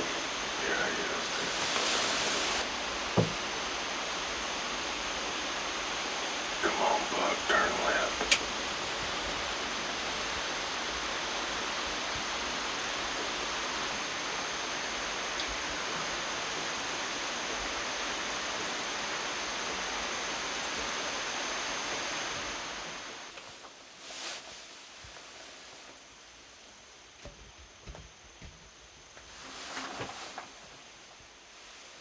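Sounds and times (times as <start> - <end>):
steady rushing hiss: 0.0 - 32.0
soft bump: 3.1 - 3.4.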